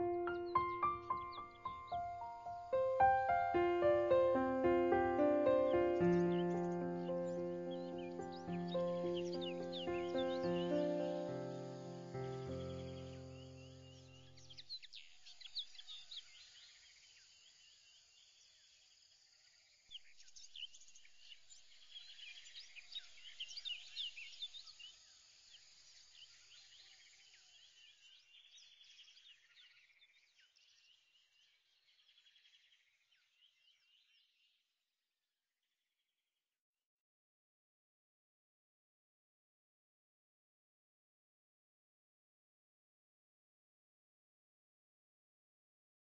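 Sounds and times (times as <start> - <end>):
chorus of bird chirps: 0.0 - 18.6, 19.9 - 34.6.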